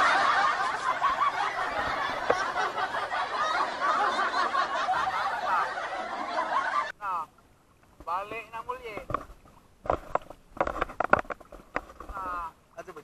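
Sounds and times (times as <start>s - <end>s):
young people laughing and shouting: 0.0s - 7.0s.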